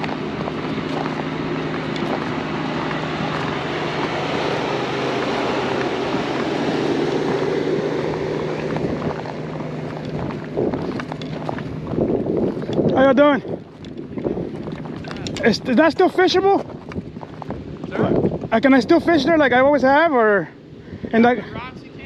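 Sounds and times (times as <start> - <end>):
motor droning: 0.0 - 22.0
wind on microphone: 0.0 - 22.0.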